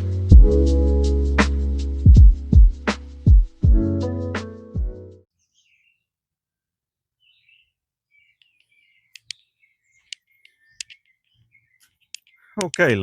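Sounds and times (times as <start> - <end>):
faint birds chirping: 5.3 - 6.2, 7.1 - 13.0
sharp clicks: 8.4 - 9.4, 10.0 - 11.1, 11.8 - 13.0.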